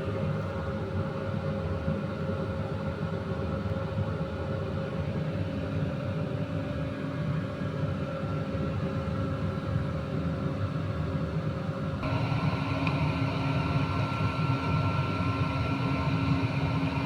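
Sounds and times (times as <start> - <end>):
mechanical motor hum: 12.0 - 17.0.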